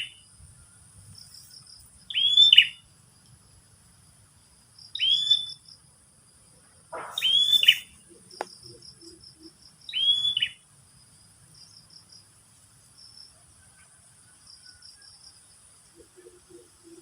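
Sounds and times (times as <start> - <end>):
high insect drone: 0.0 - 17.0
short insect chirps: 0.0 - 17.0
bird whistled call: 2.1 - 2.8, 5.0 - 5.6, 7.0 - 8.0, 9.9 - 10.6.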